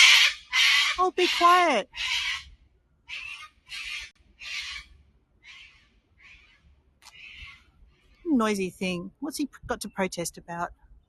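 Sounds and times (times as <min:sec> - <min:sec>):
cockatoo screeching: 0:00.0 - 0:02.5, 0:03.1 - 0:07.7.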